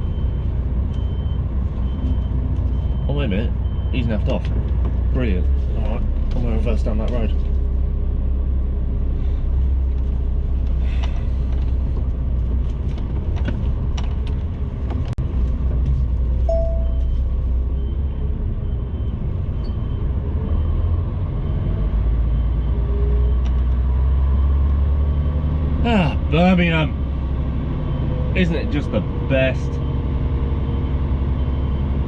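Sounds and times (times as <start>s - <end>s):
faint high reversing beep: 16.5s - 20.9s.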